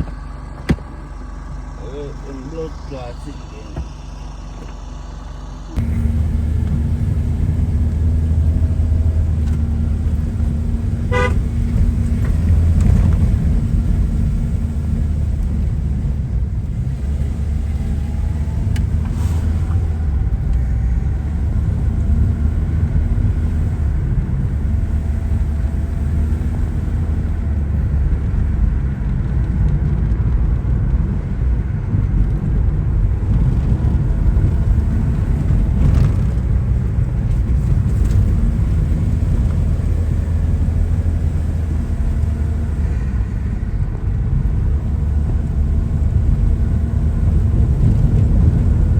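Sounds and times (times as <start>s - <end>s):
car engine and road noise: 0.0s - 48.9s
car horn toot: 11.0s - 11.7s.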